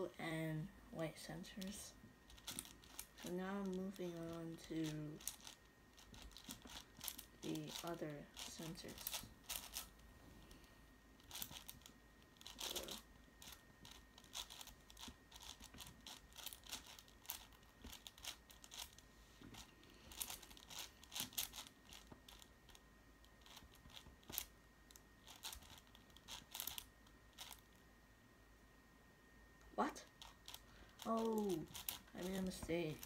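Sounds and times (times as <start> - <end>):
puzzle cube clicking and scraping: 1.6 - 27.8, 30.0 - 33.0.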